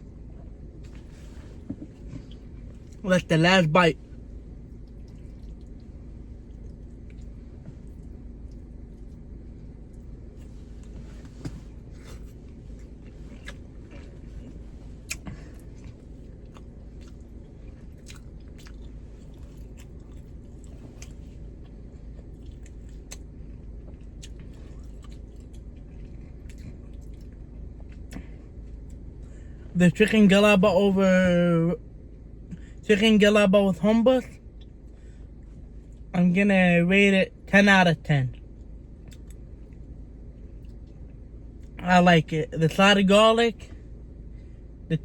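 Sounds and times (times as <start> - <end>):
steady low hum: 0.0 - 45.0
person chewing food: 4.6 - 29.3, 38.3 - 39.9.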